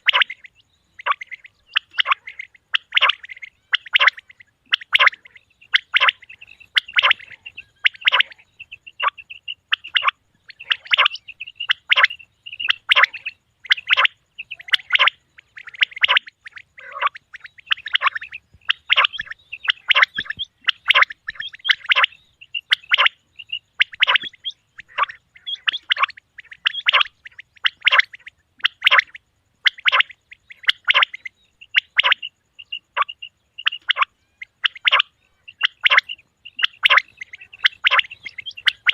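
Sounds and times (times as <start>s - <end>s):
quail calling: 0.0s - 38.9s.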